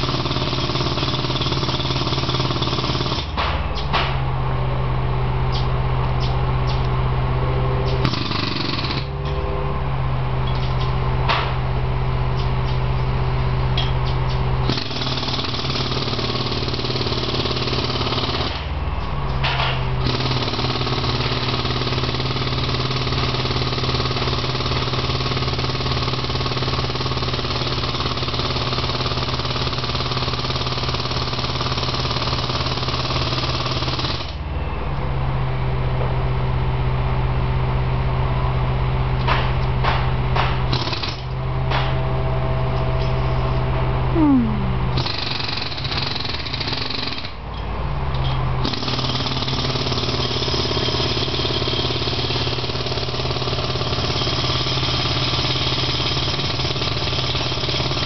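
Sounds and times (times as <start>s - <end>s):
jackhammer pounding pavement: 0.0s - 4.2s, 7.8s - 9.4s, 14.6s - 18.8s, 19.4s - 34.4s, 39.2s - 42.0s, 44.2s - 47.4s, 48.6s - 58.0s
steady engine hum: 0.0s - 26.2s, 30.9s - 50.8s.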